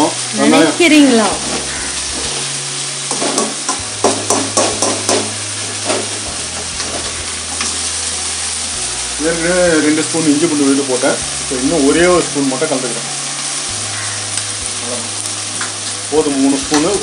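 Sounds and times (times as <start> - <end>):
onions sizzling in oil: 0.0 - 17.0
metal ladle scraping a pan: 1.3 - 8.0.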